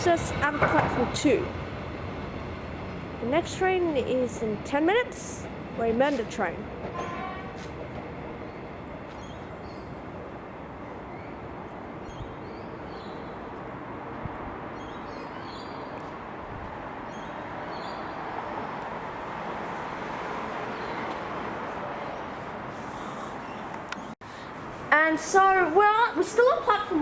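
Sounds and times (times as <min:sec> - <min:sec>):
railway station rumble: 0:00.0 - 0:27.0.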